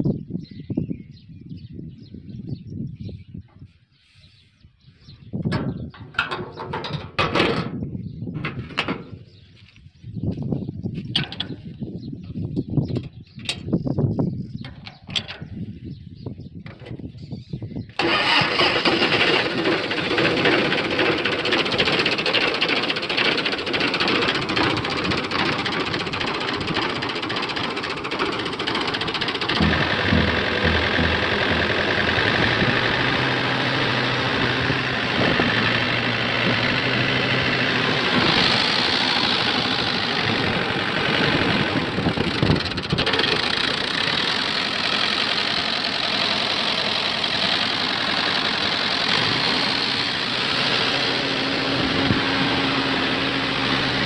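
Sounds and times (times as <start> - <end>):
diesel tractor engine running: 18.0 - 54.0.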